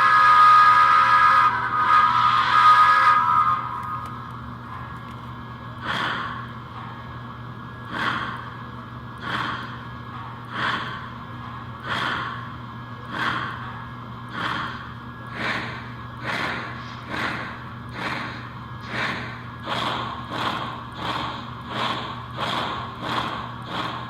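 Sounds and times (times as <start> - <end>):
model steam locomotive chuffing: 0.0 - 4.2, 5.8 - 6.5, 7.7 - 8.6, 9.2 - 9.8, 10.4 - 11.2, 11.8 - 13.7, 14.3 - 24.0
steady low hum: 0.0 - 24.0.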